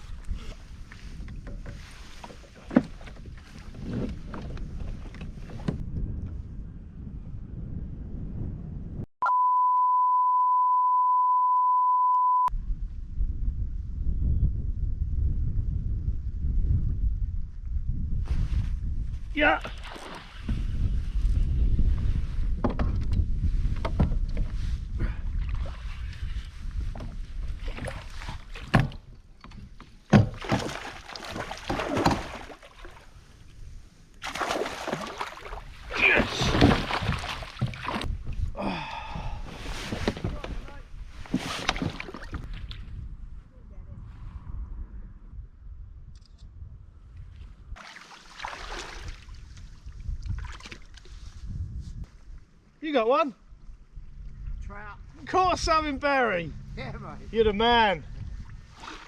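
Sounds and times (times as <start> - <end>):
wind noise on microphone: 0.0 - 9.1, 12.5 - 34.3, 35.0 - 47.8, 48.5 - 52.6, 53.4 - 59.0
censor beep tone: 9.2 - 12.5
water splashing against kayak hull: 19.6 - 21.0, 25.4 - 33.4, 34.2 - 38.2, 39.5 - 42.8, 47.8 - 51.2, 58.1 - 59.0.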